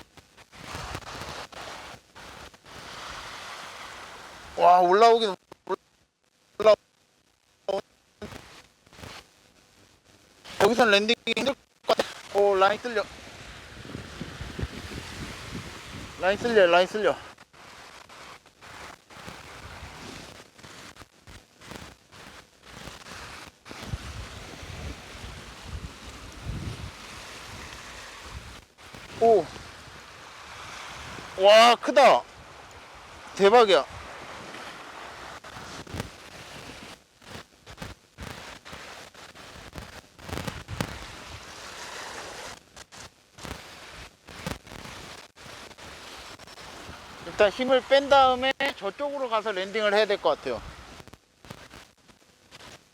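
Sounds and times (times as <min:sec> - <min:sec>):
wind: 0:00.0 - 0:52.9
sea waves: 0:02.7 - 0:04.7, 0:23.8 - 0:35.5
microphone handling noise: 0:07.7 - 0:09.3, 0:10.5 - 0:16.6, 0:17.2 - 0:31.4, 0:32.0 - 0:48.8
wind buffeting microphone: 0:13.6 - 0:16.5, 0:23.8 - 0:27.0.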